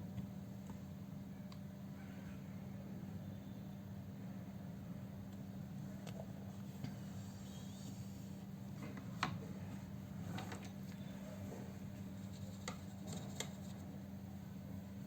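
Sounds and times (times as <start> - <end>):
light sharp clicks and taps: 12.4 - 13.8.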